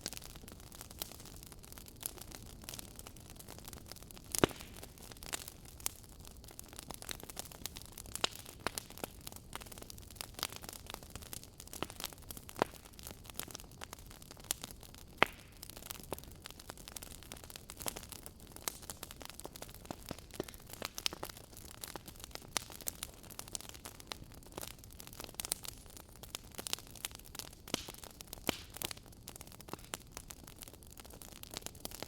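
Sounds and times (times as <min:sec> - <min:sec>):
fire hissing softly: 0:00.0 - 0:32.0
wood fire pops and snaps: 0:00.0 - 0:32.0.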